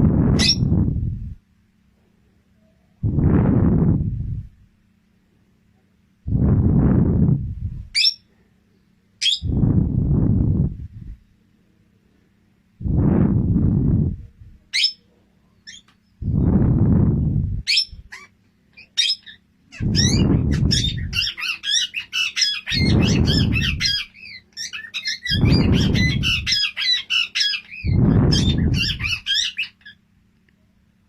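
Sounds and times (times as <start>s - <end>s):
parrot chirping and chattering: 0.4s - 0.7s, 8.0s - 8.2s, 9.2s - 9.5s, 14.7s - 15.0s, 15.7s - 15.9s, 17.6s - 30.0s
low rushing bursts: 12.8s - 14.6s.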